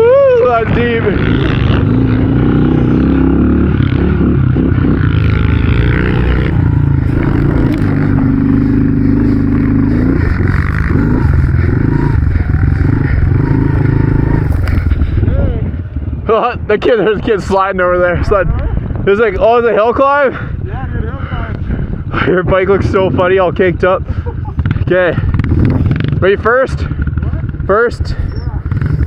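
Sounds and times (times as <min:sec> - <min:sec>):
small motorbike engine revving: 0:00.9 - 0:15.1, 0:28.4 - 0:29.0.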